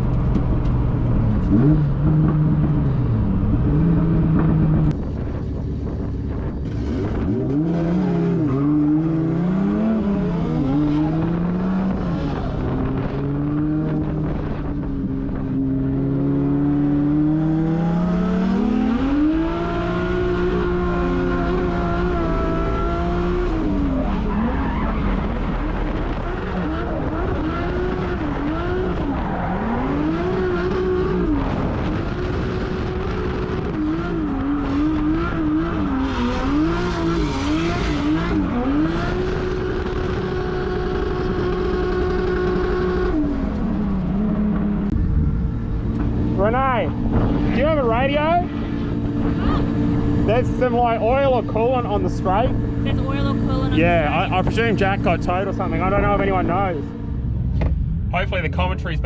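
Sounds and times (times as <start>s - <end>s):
car engine revving: 0.0s - 59.0s
tyres skidding and squealing: 21.6s - 27.2s, 28.2s - 31.4s.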